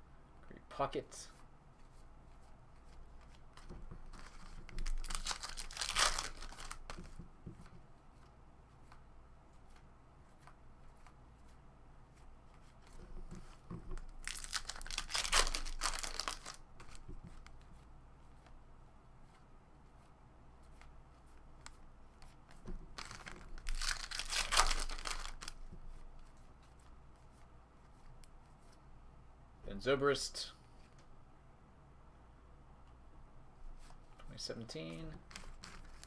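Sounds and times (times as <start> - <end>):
cards being handled: 1.3 - 18.6, 19.2 - 28.8, 33.8 - 36.0
card pack wrappers tearing: 4.2 - 7.0, 14.2 - 17.0, 23.0 - 25.6, 35.2 - 36.0.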